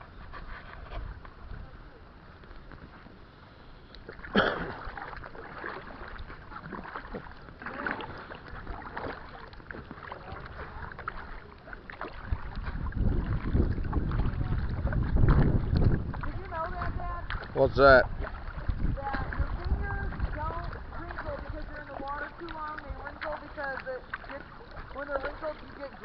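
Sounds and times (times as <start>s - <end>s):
kayak paddle splashing: 0.0s - 26.0s
wind buffeting microphone: 8.2s - 26.0s.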